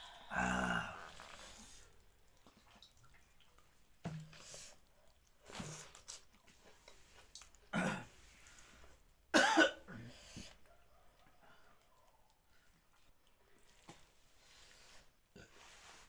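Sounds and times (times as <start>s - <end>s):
woman coughing: 9.4s - 9.9s.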